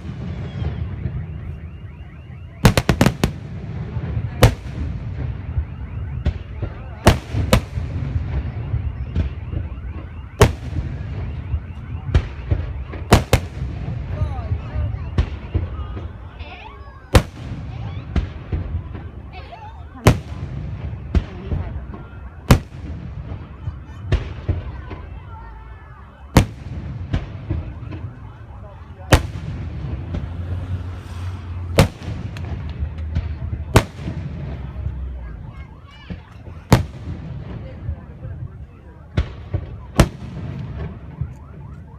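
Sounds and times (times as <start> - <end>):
fireworks bangs: 0.0 - 41.9
fireworks pops and cracks: 6.2 - 14.6, 31.8 - 38.5.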